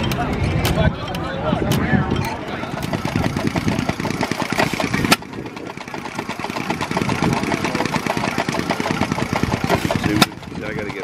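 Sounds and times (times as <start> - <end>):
stationary engine clattering: 2.2 - 11.0.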